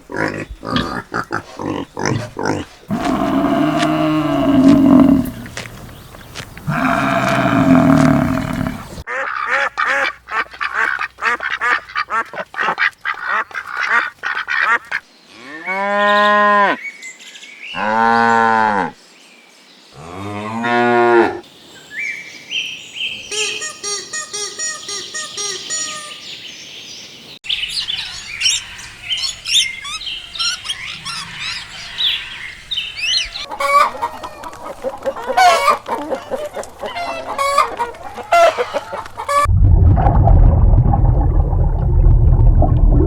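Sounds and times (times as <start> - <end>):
farm animals calling: 0.0 - 16.8, 27.9 - 39.5.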